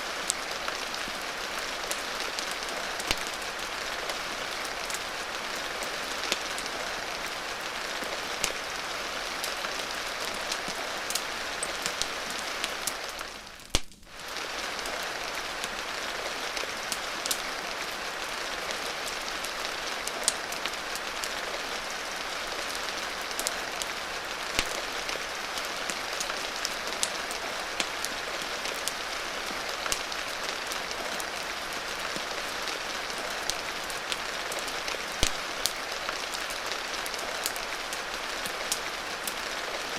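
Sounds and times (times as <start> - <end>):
rain hissing: 0.0 - 39.9
sharp crackles and pops: 8.4 - 8.8, 9.5 - 15.8, 23.2 - 29.1, 33.2 - 39.4.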